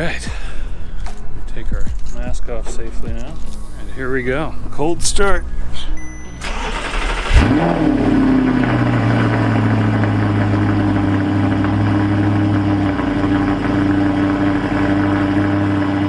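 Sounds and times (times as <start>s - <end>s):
car engine idling after cold start: 6.4s - 16.0s.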